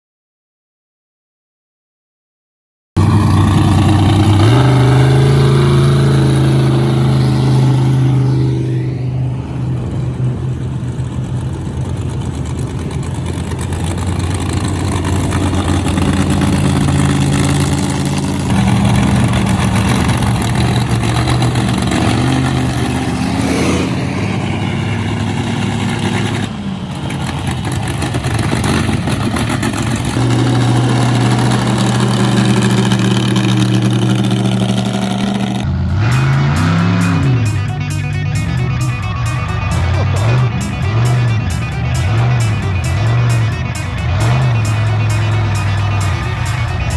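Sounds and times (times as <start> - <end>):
truck engine revving: 3.0 - 46.9.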